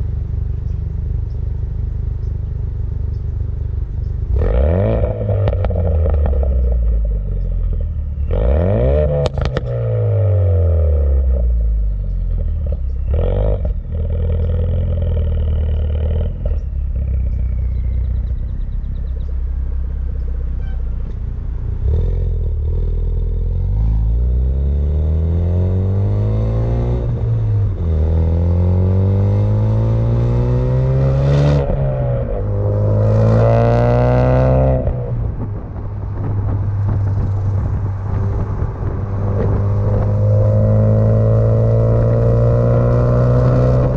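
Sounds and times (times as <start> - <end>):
car engine revving: 3.9 - 11.6, 12.3 - 43.9
car accelerating through gears: 21.8 - 35.2, 37.6 - 43.9.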